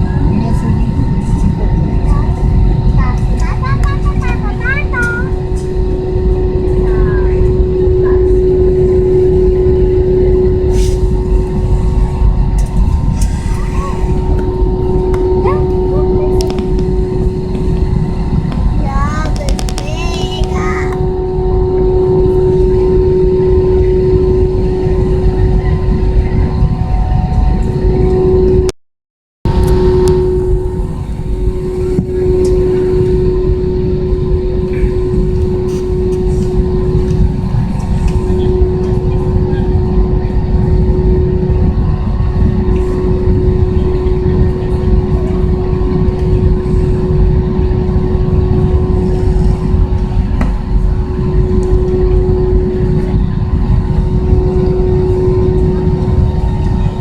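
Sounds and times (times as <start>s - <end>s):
held tone: 0.0s - 28.7s, 29.5s - 57.0s
jet engines rumbling in cabin: 0.0s - 28.7s, 29.5s - 57.0s
steady hum: 0.0s - 28.7s, 29.5s - 57.0s.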